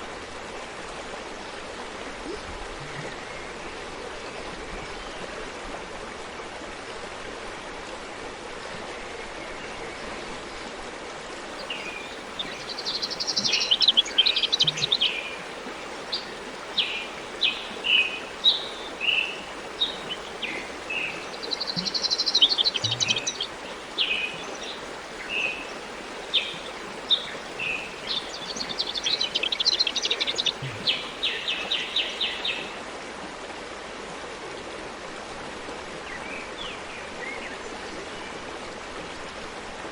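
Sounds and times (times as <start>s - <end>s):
forest stream running: 0.0s - 39.9s
bird chirps: 11.6s - 32.7s
songbird trilling: 11.6s - 32.8s.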